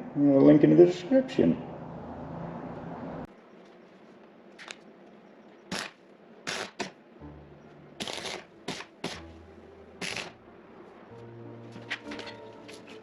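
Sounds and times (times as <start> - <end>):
low background music: 7.1 - 13.0.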